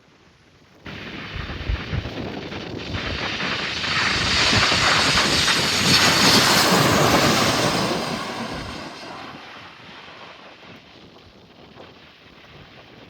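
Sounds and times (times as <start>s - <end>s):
jet airliner engine noise: 0.9s - 10.9s.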